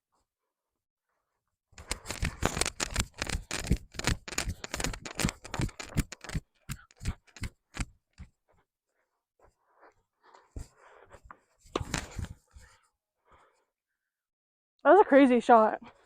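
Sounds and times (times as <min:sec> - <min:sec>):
sharp clicks and taps: 0:01.8 - 0:07.9.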